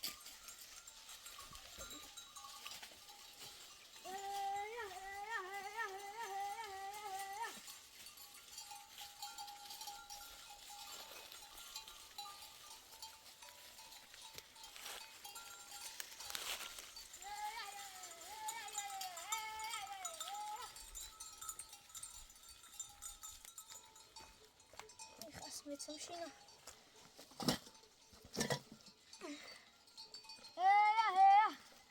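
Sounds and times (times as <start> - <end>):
livestock bells ringing: 0.0 - 31.9
goat bleating: 4.1 - 7.7, 17.2 - 20.8.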